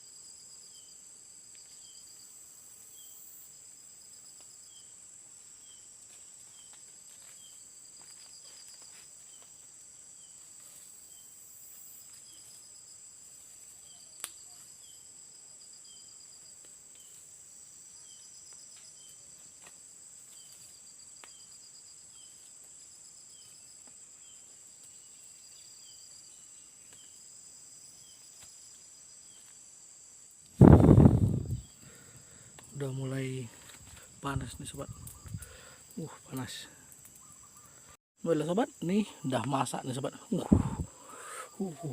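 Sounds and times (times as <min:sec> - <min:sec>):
insect chirp: 0:00.0 - 0:41.9
insects droning: 0:00.0 - 0:41.9.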